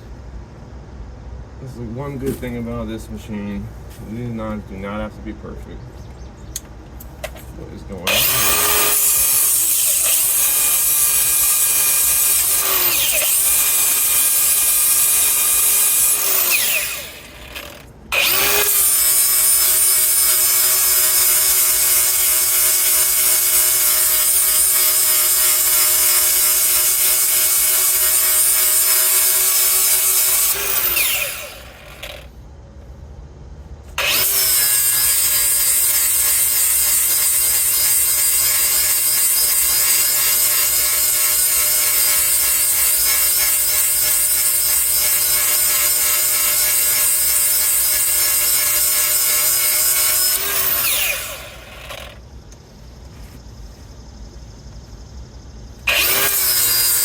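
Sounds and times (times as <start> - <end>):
power grinder whining and grinding: 7.9 - 32.3, 33.9 - 52.2, 55.8 - 57.0.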